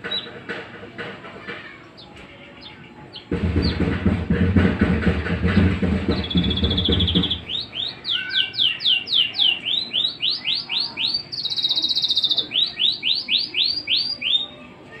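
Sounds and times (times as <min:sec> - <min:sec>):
bird singing trills and whistles: 0:06.1 - 0:14.6.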